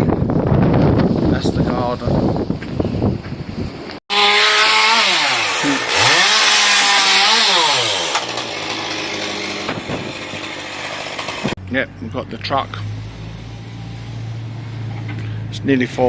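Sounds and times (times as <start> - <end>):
chainsaw cutting wood: 4.1 - 11.6.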